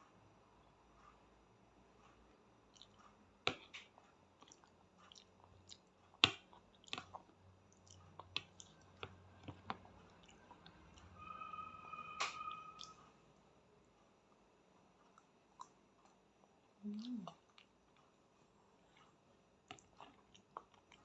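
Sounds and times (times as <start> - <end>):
child chewing pasta: 0.6 - 11.3, 14.3 - 21.0
steady high tone: 11.0 - 13.3.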